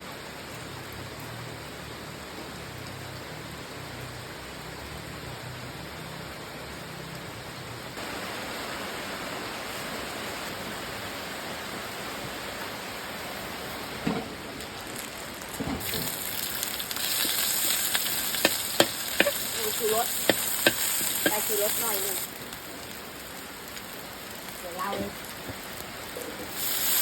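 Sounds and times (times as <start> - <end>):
food sizzling in a wok: 13.2 - 27.0.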